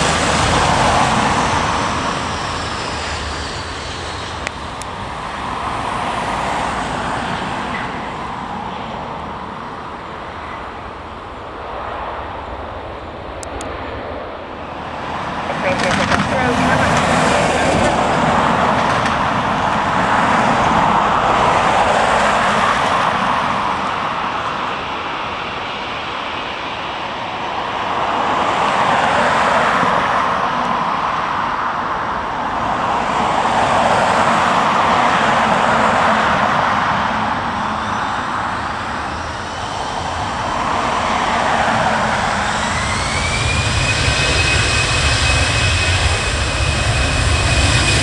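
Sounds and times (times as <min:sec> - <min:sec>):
vehicle engine rushing: 0:00.0 - 0:26.0, 0:27.6 - 0:48.0
faint rising whine: 0:36.3 - 0:48.0.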